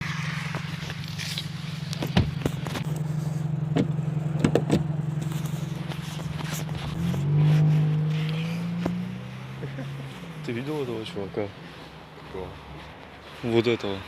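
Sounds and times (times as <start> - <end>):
vehicle engine running: 0.0 - 14.0
sharp clicks and knocks: 3.7 - 6.7.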